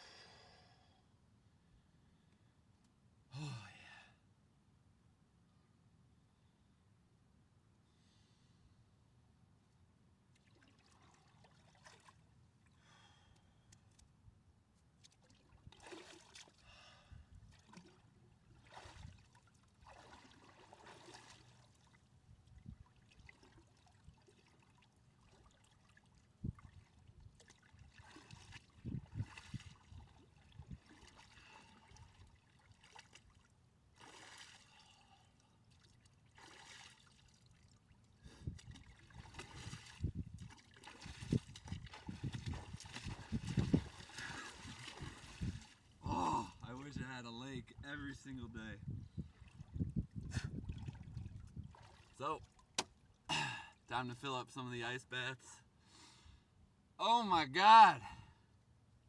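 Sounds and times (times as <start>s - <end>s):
water trickling and swishing: 10.3s - 12.8s, 14.8s - 46.0s, 48.8s - 53.3s.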